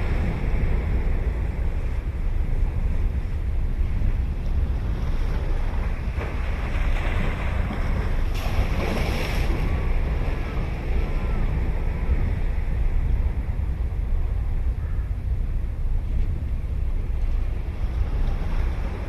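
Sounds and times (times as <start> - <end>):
ocean surf breaking: 0.0 - 14.9
wind rumbling on microphone: 0.0 - 19.0.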